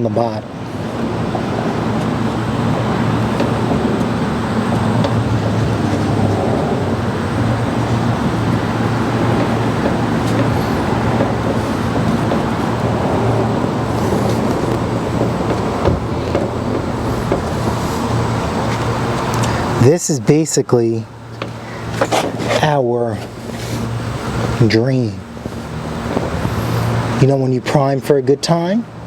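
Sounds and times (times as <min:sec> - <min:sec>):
motor droning: 0:00.4 - 0:19.8.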